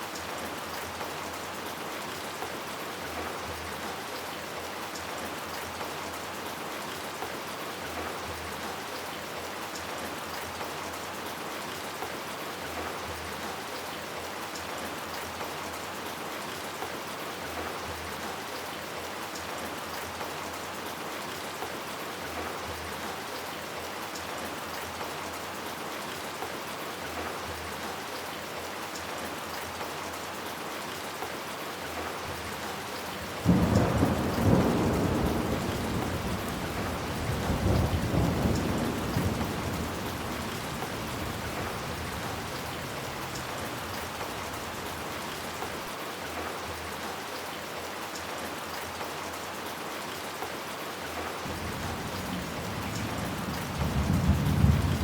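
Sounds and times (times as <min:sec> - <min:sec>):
steady rain falling: 0:00.0 - 0:55.0
thunder rumbling: 0:33.4 - 0:44.6, 0:51.5 - 0:55.0.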